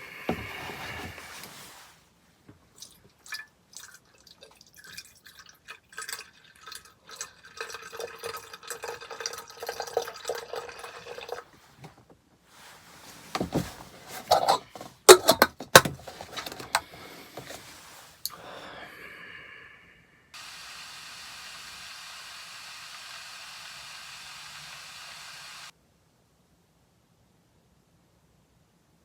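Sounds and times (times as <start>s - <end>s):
liquid pouring into a bowl: 2.8s - 11.5s.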